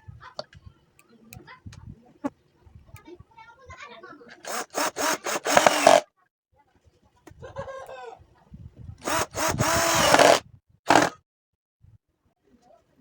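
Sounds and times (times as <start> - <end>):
saw cutting wood: 4.4 - 6.0, 9.0 - 11.2.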